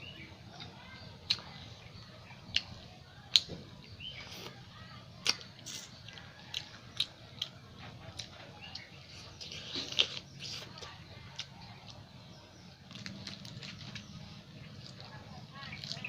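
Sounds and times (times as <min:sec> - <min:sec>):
person chewing: 0:05.2 - 0:07.6, 0:08.2 - 0:12.0, 0:12.9 - 0:14.1.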